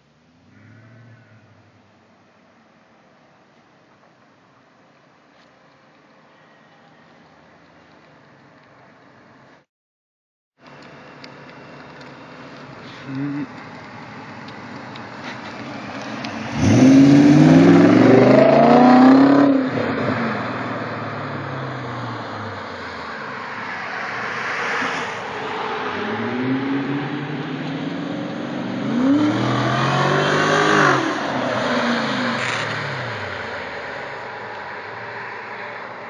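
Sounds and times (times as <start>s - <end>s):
car engine revving exhaust: 10.9s - 23.1s, 26.0s - 35.1s.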